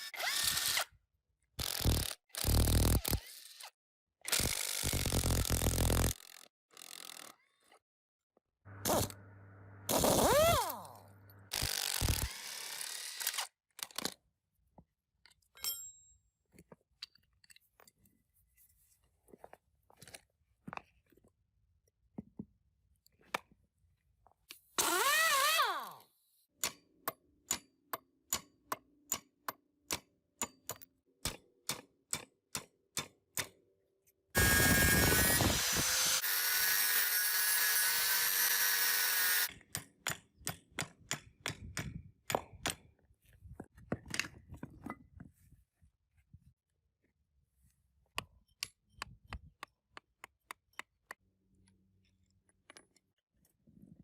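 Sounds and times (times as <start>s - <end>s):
power tool running: 8.7s - 13.2s, 34.4s - 39.5s
tool clicks and taps: 48.1s - 51.8s.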